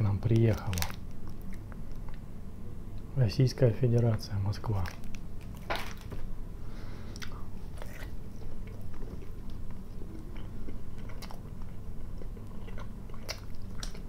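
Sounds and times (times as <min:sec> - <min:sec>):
steady low hum: 0:00.0 - 0:14.0
wet chewing: 0:07.1 - 0:14.0.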